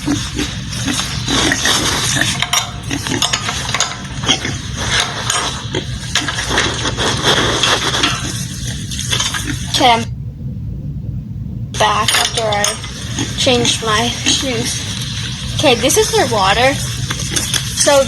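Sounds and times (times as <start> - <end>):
pigs grunting: 0.0 - 9.8.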